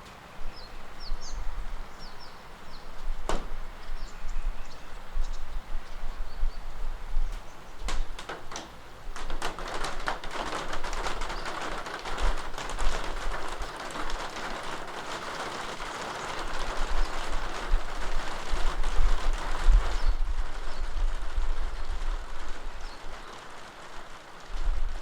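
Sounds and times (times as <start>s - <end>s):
steady rain falling: 0.0s - 25.0s
drops tapping sharply: 3.3s - 3.6s.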